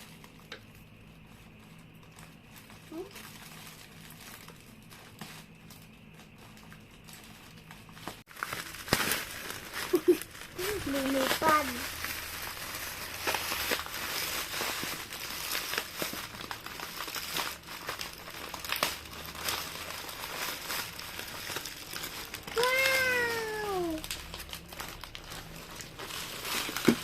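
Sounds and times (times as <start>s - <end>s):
plastic packaging crinkling: 0.0s - 27.0s
child saying wow: 10.6s - 11.8s, 22.5s - 24.0s.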